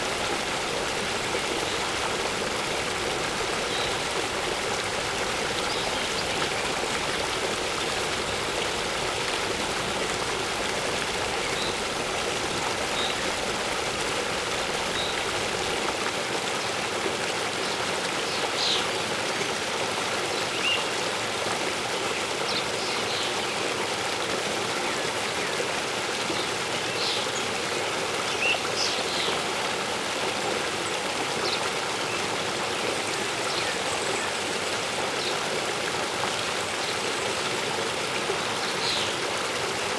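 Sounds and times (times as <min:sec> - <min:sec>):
waterfall rushing: 0:00.0 - 0:16.1.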